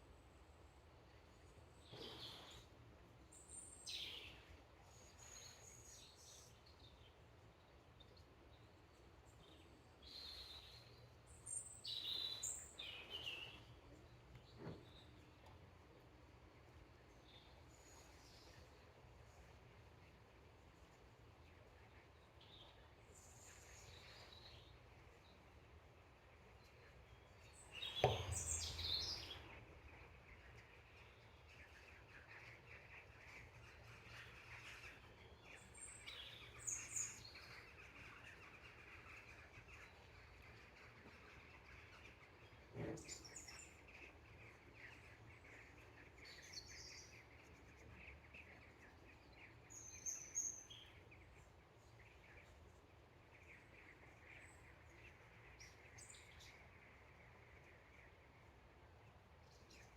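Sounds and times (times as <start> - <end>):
faint steady high hiss: 0.0 - 59.9
small birds chirping: 0.0 - 59.9
knocks: 28.0 - 28.6.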